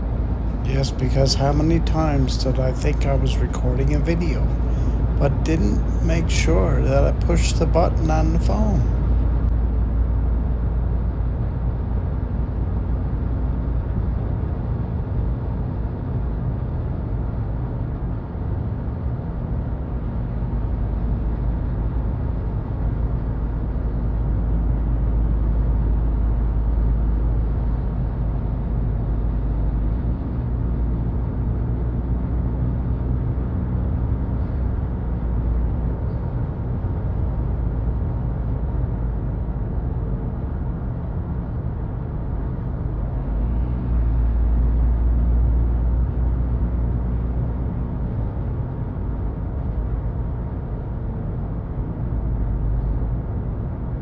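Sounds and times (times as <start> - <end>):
vehicle road and engine rumble: 0.0 - 54.0.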